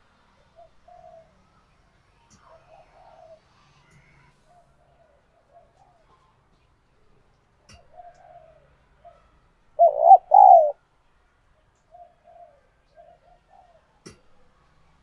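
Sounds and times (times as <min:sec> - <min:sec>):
dove cooing: 0:00.6 - 0:01.3, 0:09.8 - 0:10.8.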